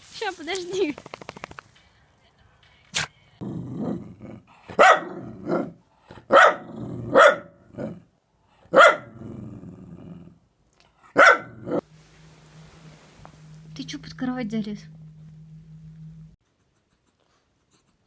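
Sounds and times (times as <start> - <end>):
dog growling: 3.4 - 5.8, 9.1 - 10.4
small dog barking: 4.8 - 8.0, 8.7 - 9.2, 11.2 - 11.8.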